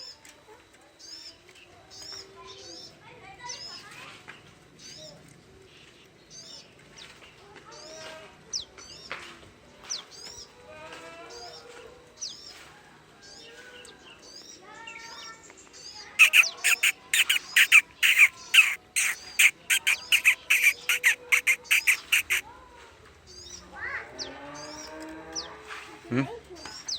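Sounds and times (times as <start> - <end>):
bird chirping and calling: 15.8 - 22.4, 26.6 - 26.9.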